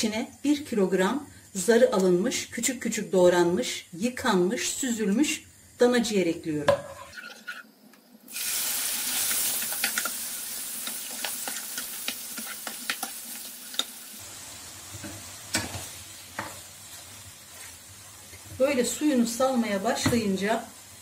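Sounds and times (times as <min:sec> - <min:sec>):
meat sizzling in a frying pan: 0:08.3 - 0:21.0
wooden spoon scraping a pan: 0:10.8 - 0:13.2.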